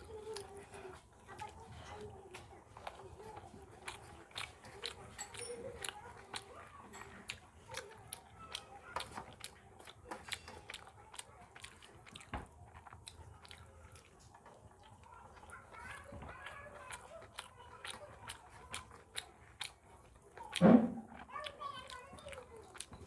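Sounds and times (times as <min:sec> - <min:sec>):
wet chewing and lip smacks: 0:00.0 - 0:23.0.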